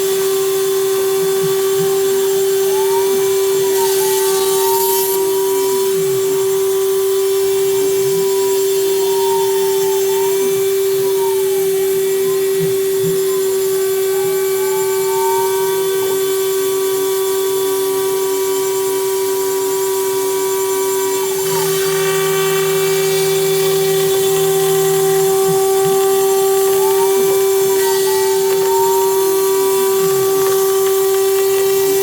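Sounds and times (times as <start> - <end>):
router spindle high whine: 0.0 - 32.0
gliding machine tones: 19.8 - 32.0.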